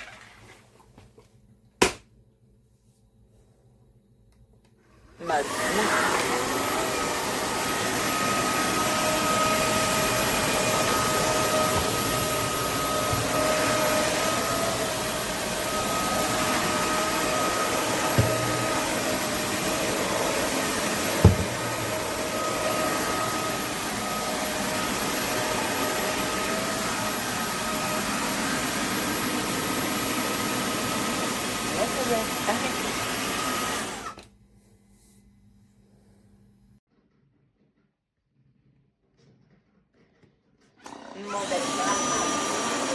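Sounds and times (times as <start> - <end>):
floor cleaner suction and motor whine: 5.0 - 34.3, 40.8 - 42.9.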